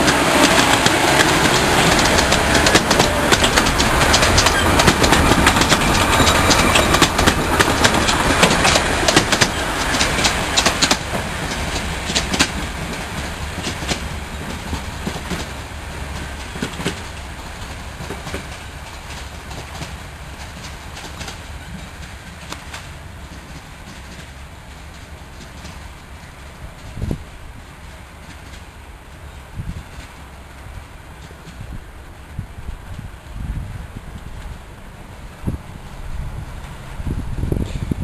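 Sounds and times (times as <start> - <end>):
train wheels clattering over rail joints: 0.0 - 28.9.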